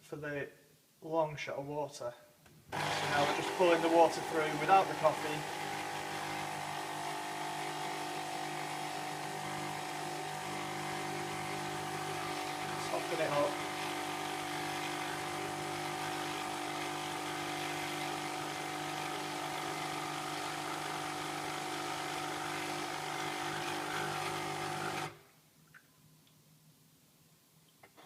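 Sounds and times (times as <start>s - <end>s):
coffee machine pump buzzing: 2.7s - 25.2s.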